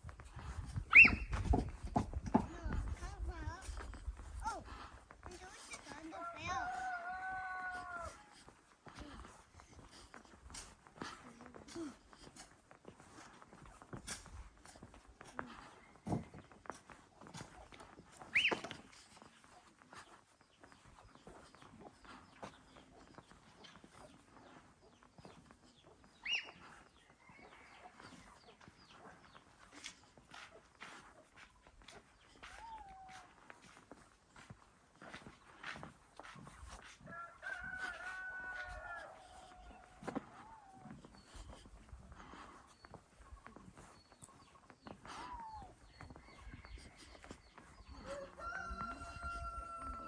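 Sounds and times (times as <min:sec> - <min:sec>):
rooster crowing: 0:37.1 - 0:39.9, 0:48.0 - 0:50.0.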